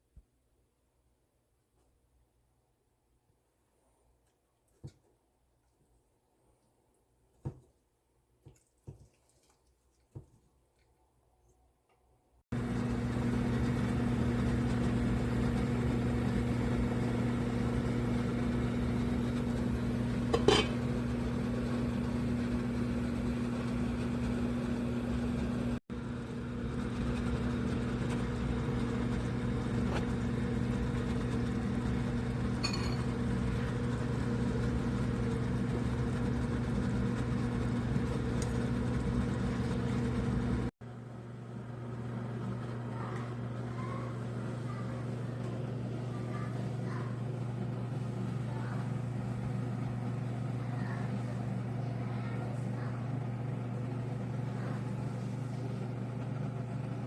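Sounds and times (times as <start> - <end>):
electric motor hum: 12.5 - 40.7.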